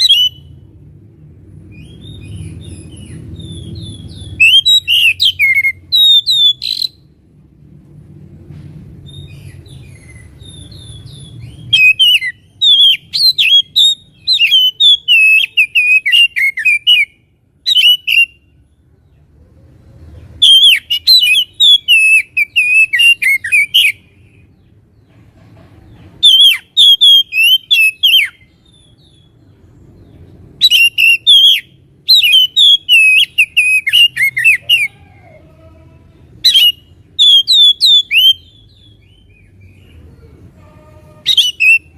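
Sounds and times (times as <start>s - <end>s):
bird singing whistles and chirps: 0.0s - 0.6s, 1.7s - 7.0s, 9.0s - 18.4s, 20.4s - 24.1s, 26.2s - 29.4s, 30.1s - 35.0s, 36.4s - 39.9s, 41.3s - 41.9s.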